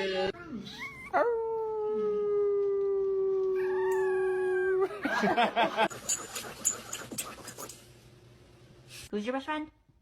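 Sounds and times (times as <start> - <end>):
pet howling: 0.7 - 4.9.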